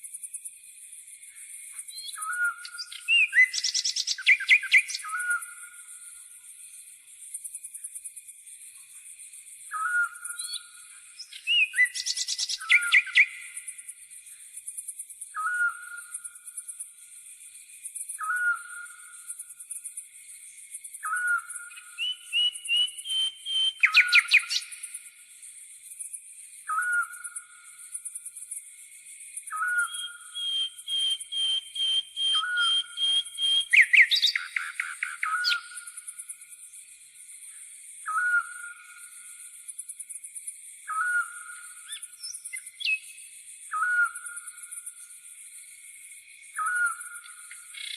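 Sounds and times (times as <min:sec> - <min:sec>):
insects chirring: 0:00.0 - 0:47.9
quick bird song: 0:21.0 - 0:24.9, 0:29.5 - 0:36.0, 0:40.9 - 0:43.1.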